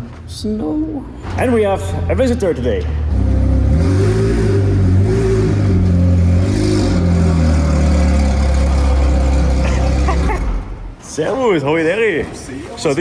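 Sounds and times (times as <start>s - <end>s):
car engine running at low revs: 2.8s - 10.7s.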